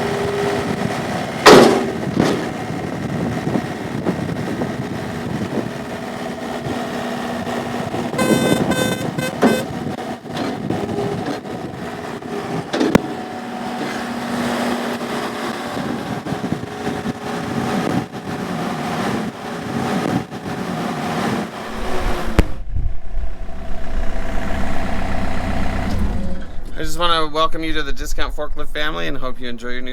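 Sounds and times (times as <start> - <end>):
diesel engine running: 0.0 - 27.9.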